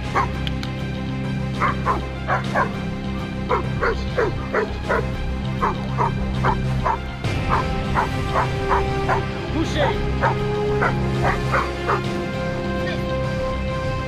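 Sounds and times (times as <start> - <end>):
background music: 0.0 - 14.0
dog barking: 0.1 - 0.4, 1.6 - 2.8, 3.5 - 9.4, 10.1 - 12.2.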